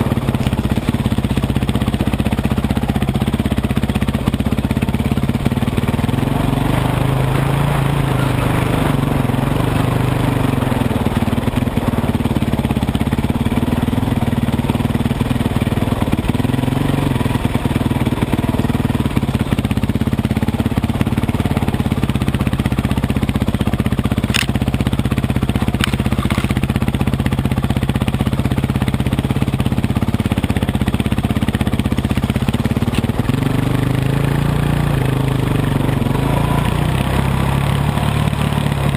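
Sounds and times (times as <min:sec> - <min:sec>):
dirt bike engine running: 0:00.0 - 0:38.9
sharp clicks: 0:24.3 - 0:24.6.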